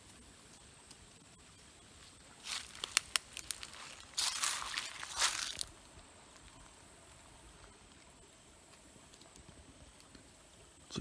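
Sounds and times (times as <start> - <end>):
footsteps crunching dry leaves: 1.8 - 6.6
twigs snapping: 2.3 - 5.8.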